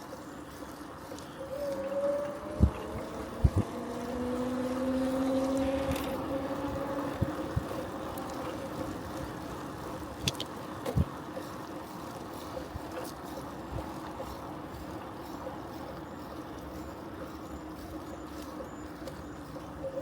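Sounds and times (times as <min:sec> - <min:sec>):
bicycle tyre and wind rumble: 0:00.0 - 0:20.0
vehicle passing: 0:01.5 - 0:10.1.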